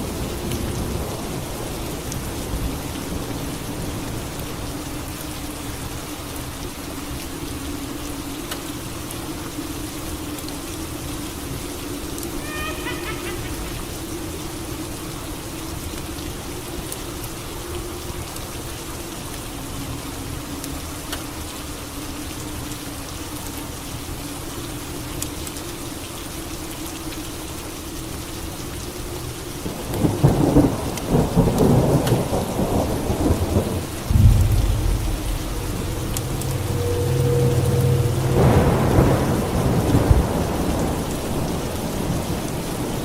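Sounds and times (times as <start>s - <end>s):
steady rain: 0.0s - 43.0s
thunder rumbling: 30.3s - 42.9s
faint low wavering drone: 34.0s - 40.8s.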